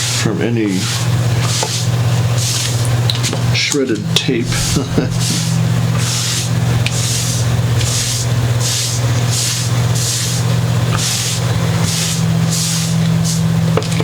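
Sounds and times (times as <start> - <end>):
steady low hum: 0.0 - 14.0
hissing wiping swishes: 4.4 - 13.5.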